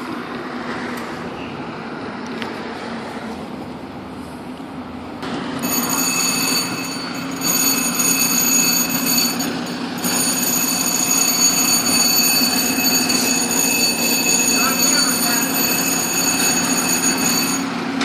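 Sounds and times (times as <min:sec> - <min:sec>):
fire engine running loud: 0:00.0 - 0:18.0
high-pitched ringing tone: 0:05.6 - 0:18.0.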